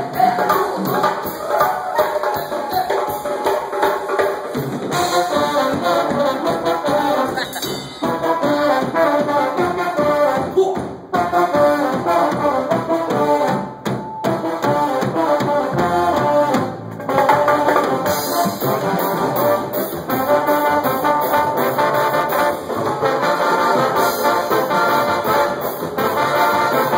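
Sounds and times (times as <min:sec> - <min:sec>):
brass band playing: 0:00.0 - 0:26.9.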